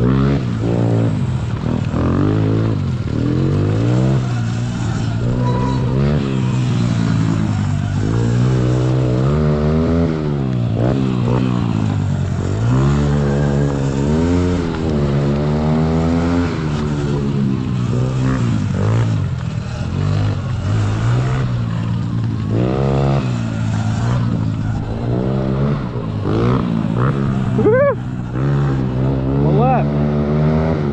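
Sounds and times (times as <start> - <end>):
electric dirt bike motor whining: 2.8 - 9.4.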